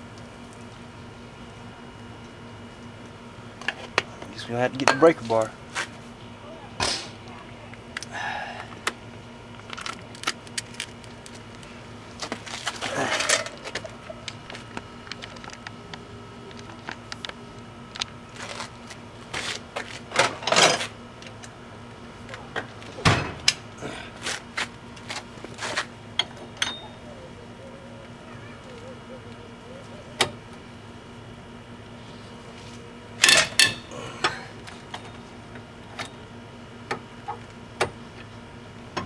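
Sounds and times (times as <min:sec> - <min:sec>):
faint steady hum: 0:00.0 - 0:39.0
hand tools clanking and rattling: 0:12.7 - 0:14.0.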